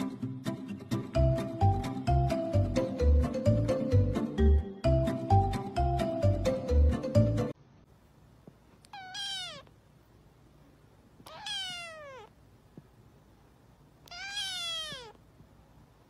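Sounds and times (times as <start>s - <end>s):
kitten meowing: 8.8s - 9.7s, 11.2s - 12.4s, 14.0s - 15.2s.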